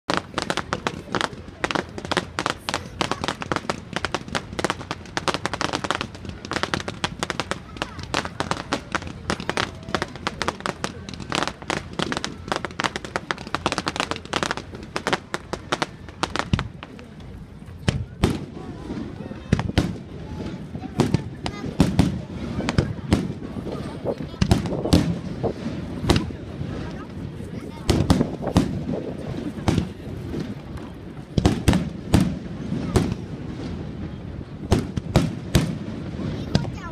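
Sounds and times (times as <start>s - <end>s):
fireworks crackling pops: 0.1s - 36.9s
deep firework bang: 17.8s - 36.9s.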